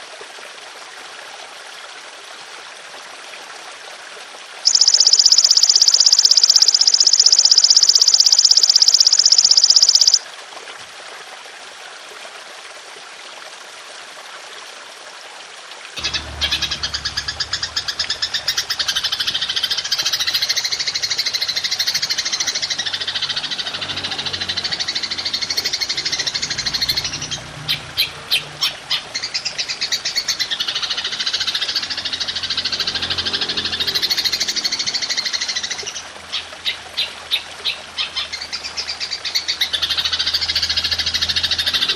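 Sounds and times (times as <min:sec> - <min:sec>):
grasshopper buzzing trills: 0:04.7 - 0:10.2
grasshopper rapid chirps: 0:04.7 - 0:10.2, 0:16.0 - 0:35.8.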